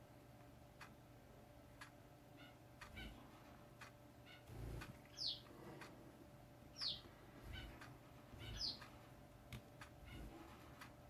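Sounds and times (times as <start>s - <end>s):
bird chirping faintly: 2.2s - 6.0s, 6.6s - 9.2s, 9.8s - 10.9s.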